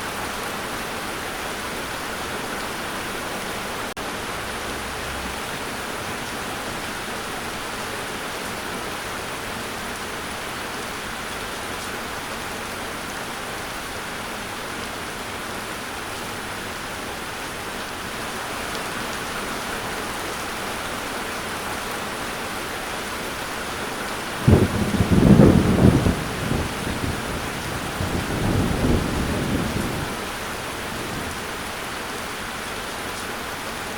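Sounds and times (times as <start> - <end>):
steady rain falling: 0.0 - 33.9
thunder clap: 24.4 - 31.5.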